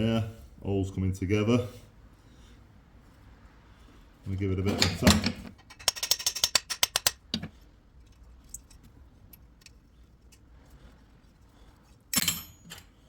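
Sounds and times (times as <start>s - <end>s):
metal parts clicking: 4.7s - 10.5s.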